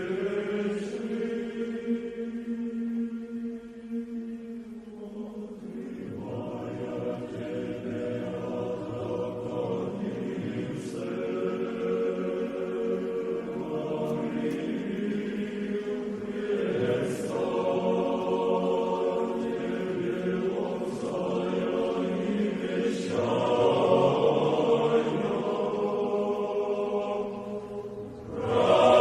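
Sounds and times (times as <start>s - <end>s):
choir singing chant: 0.0s - 29.0s.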